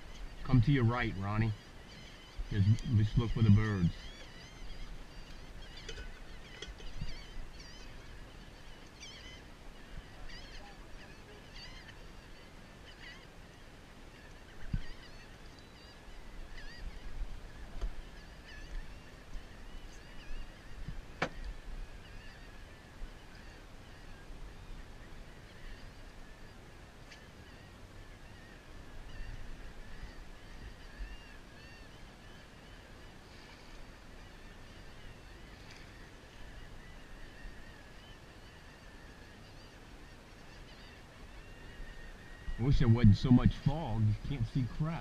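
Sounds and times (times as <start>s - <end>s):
low wind or boat rumble: 0.0s - 12.9s, 39.8s - 45.0s
seabirds calling: 0.0s - 45.0s.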